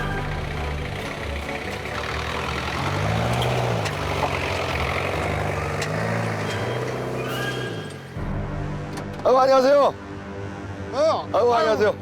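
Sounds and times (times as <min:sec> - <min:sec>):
truck engine running: 0:00.0 - 0:08.9.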